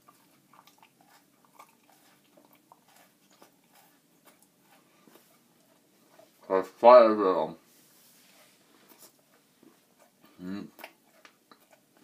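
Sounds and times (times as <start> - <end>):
chewing crunchy granola bar: 0.0 - 6.8, 8.8 - 12.0.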